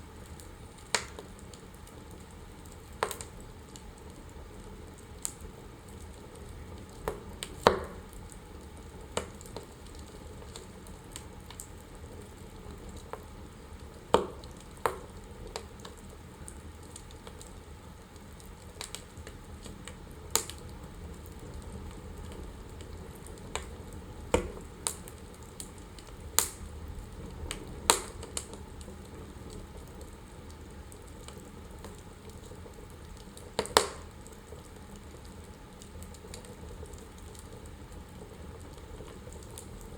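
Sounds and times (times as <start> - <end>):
logs crackling and popping: 0.1 - 39.9
fire flames rushing: 19.8 - 39.9.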